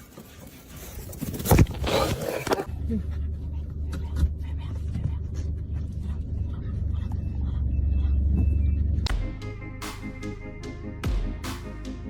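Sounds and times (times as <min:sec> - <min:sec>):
steady low rumble: 0:02.7 - 0:12.0
music with sharp struck notes: 0:09.1 - 0:12.0.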